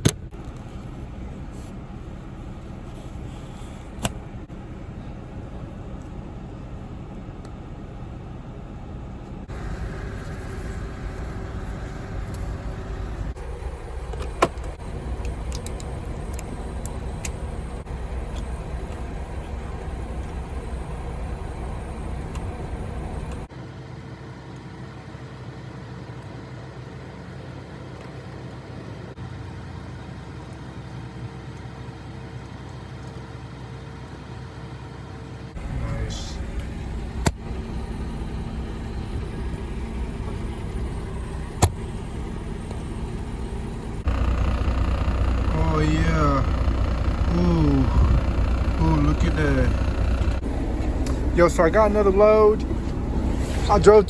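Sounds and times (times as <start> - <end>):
truck engine and road noise: 0.0 - 54.0.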